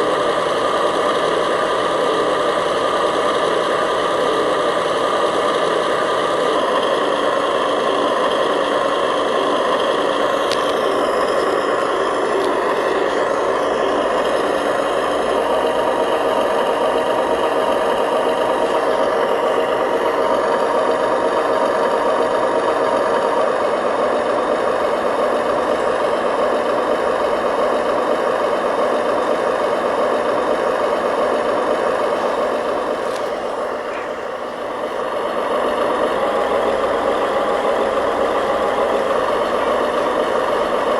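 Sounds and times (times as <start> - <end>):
model machinery engine drone: 0.0 - 29.2, 32.2 - 35.4, 36.0 - 40.9.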